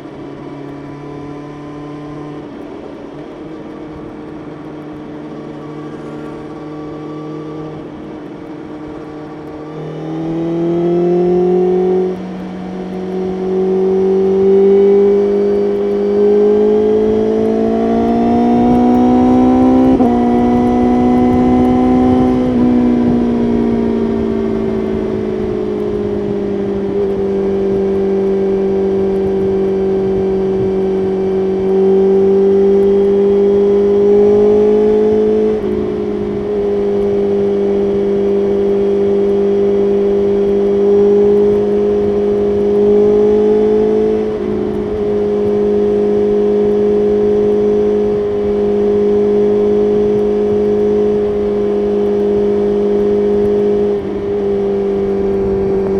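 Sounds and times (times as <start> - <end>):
motorcycle engine at speed: 0.0 - 55.9
wind rush: 13.3 - 47.0, 50.2 - 55.9.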